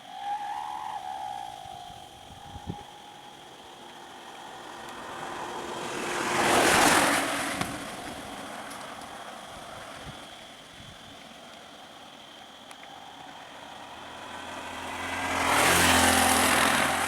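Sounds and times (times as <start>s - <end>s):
vehicle passing by: 3.8s - 10.0s, 13.2s - 17.0s.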